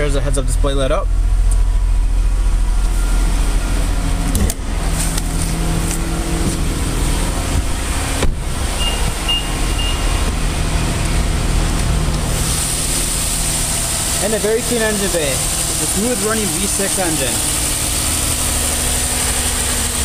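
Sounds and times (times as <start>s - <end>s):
car engine idling: 0.0s - 20.0s
sharp thump: 7.6s - 8.4s
short high beeps: 8.8s - 10.2s.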